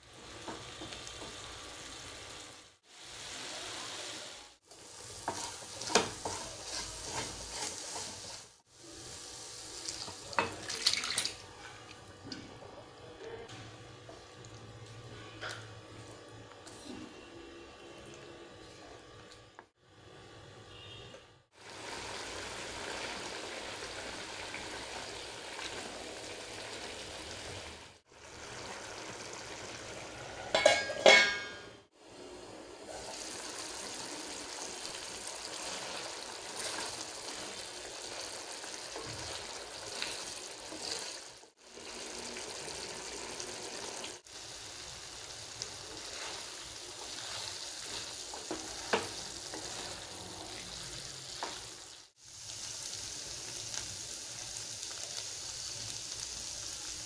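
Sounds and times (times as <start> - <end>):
stirring in a pan: 0.0 - 13.0, 32.8 - 42.7, 43.3 - 52.2
gravy sizzling and bubbling in pan: 0.0 - 57.0.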